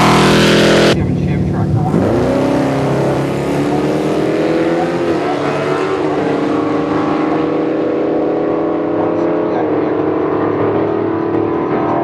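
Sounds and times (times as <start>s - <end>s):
racing engine accelerating hard: 0.0s - 12.0s.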